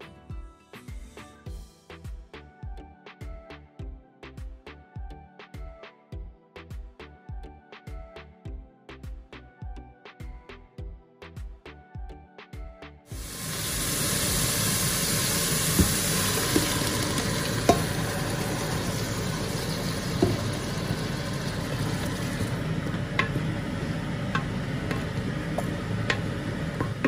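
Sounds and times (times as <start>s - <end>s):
music: 0.0s - 27.0s
food sizzling in hot oil: 13.1s - 27.0s
wooden spoon knocking a pot: 17.6s - 18.0s, 20.1s - 20.6s, 24.3s - 27.0s.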